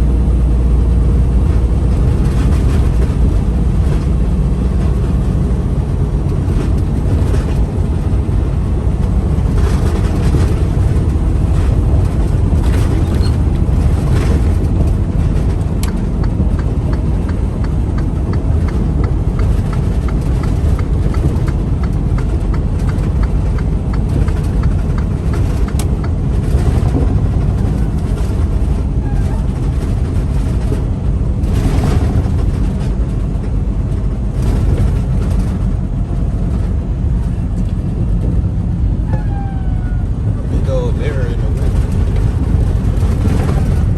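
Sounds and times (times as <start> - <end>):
truck engine and road rumble: 0.0 - 43.9.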